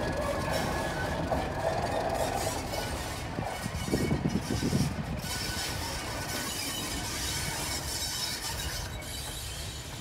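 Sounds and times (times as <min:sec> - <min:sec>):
train rumbling on rails: 0:00.0 - 0:10.0.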